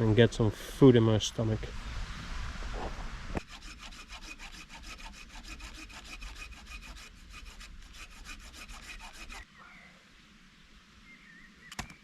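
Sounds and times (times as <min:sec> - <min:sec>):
hand saw cutting wood: 0:03.4 - 0:09.4.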